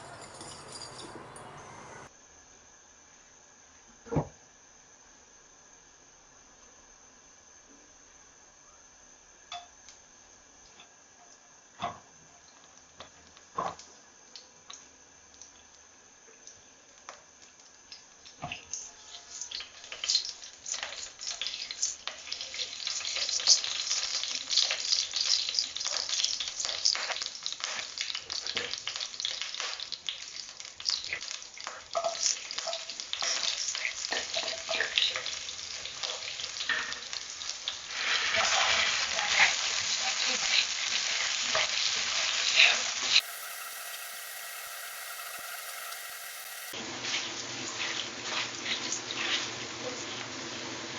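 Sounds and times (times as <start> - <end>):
food sizzling in a hot pan: 18.7 - 50.9.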